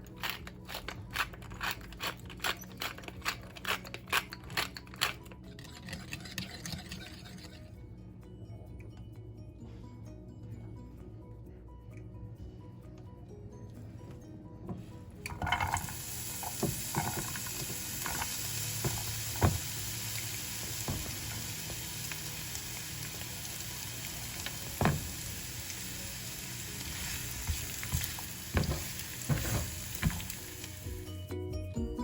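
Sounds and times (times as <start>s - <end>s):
utensil scraping a pan: 5.5s - 7.6s, 15.4s - 19.6s, 26.7s - 30.6s
food sizzling in a pan: 15.4s - 31.1s.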